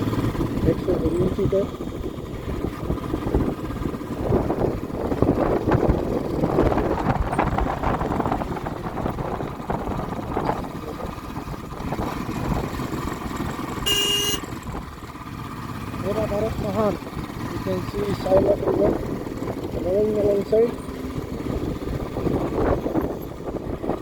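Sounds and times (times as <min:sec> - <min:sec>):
motorcycle engine running: 0:00.0 - 0:24.0
wind and road noise: 0:00.0 - 0:24.0
short high beep: 0:13.9 - 0:14.4.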